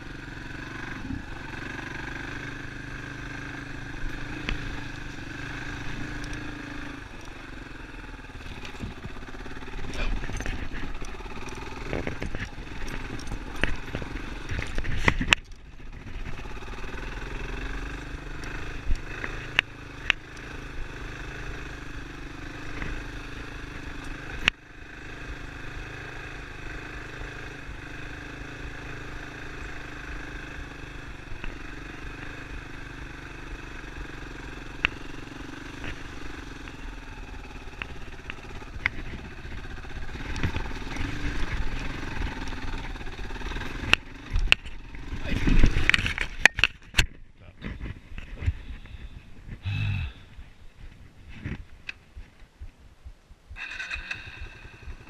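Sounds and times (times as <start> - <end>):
motorcycle engine running: 0.0 - 55.0
sharp clicks and knocks: 9.9 - 16.3, 43.5 - 48.6.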